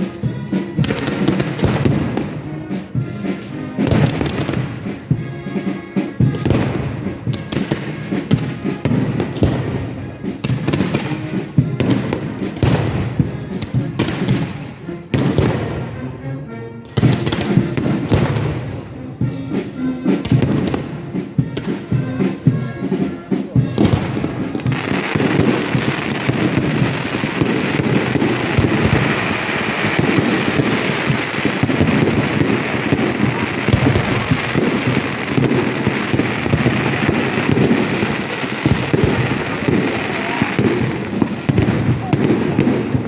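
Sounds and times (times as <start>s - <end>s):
firework booms: 23.7s - 43.0s
firework crackle: 23.7s - 43.0s.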